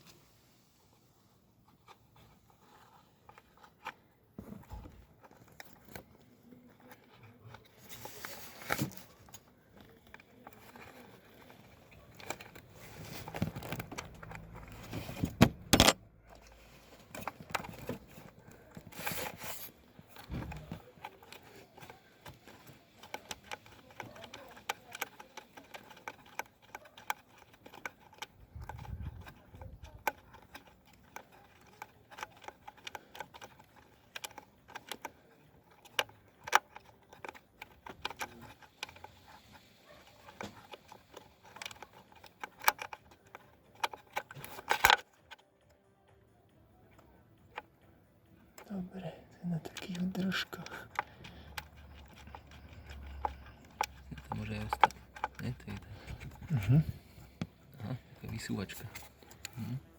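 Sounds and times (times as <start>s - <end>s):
rustling and scraping of parts: 0.0s - 46.2s, 49.6s - 59.9s
clicks of plastic parts: 4.6s - 45.8s.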